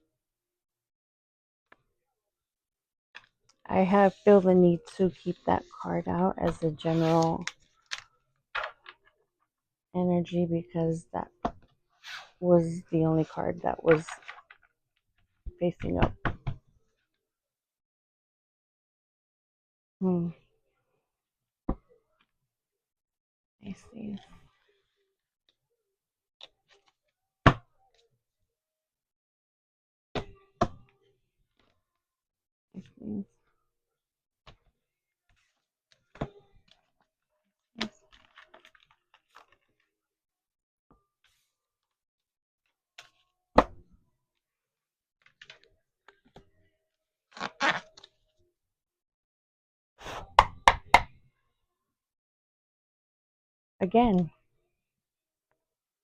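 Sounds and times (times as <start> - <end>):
cards rustling: 37.9 - 39.8.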